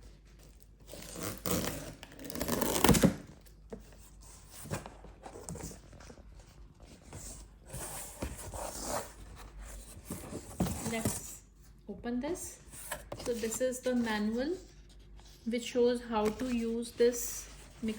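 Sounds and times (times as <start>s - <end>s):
cardboard box tearing and rustling: 0.8s - 3.3s, 7.1s - 11.3s.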